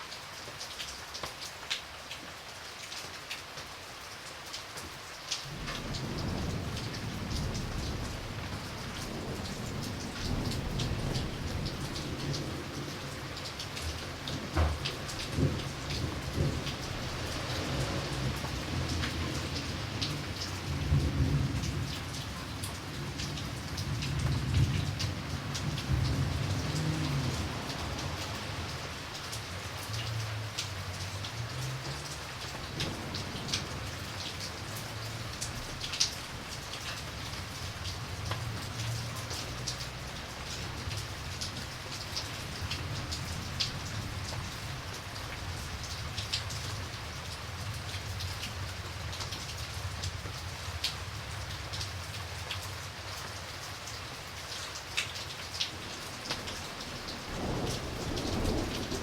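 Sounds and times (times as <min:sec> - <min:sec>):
raindrops ticking on hard surface: 0:00.0 - 0:59.0
steady rain falling: 0:00.0 - 0:59.0
low thunder rumble: 0:05.5 - 0:29.3, 0:31.8 - 0:47.1, 0:55.8 - 0:59.0.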